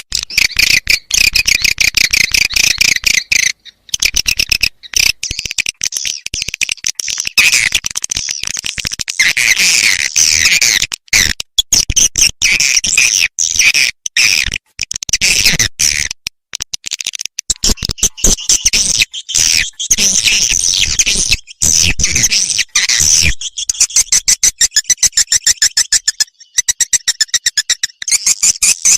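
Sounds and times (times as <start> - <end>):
swiftlets twittering chirps: 17.6 - 28.9.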